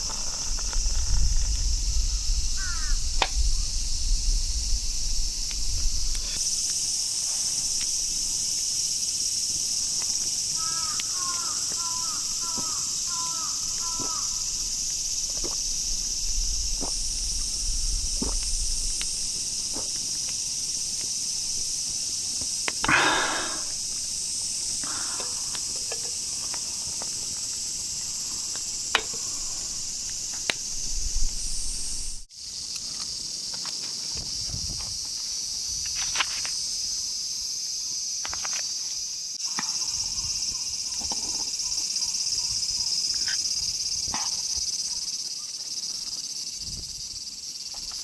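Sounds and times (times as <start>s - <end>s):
cicadas droning: 0.0s - 48.0s
bird calling: 2.6s - 3.0s, 10.6s - 14.6s.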